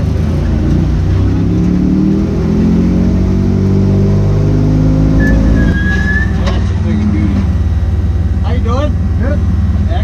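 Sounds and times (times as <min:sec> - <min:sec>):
race car engine accelerating: 0:00.0 - 0:10.0
short high whistle: 0:05.2 - 0:06.4.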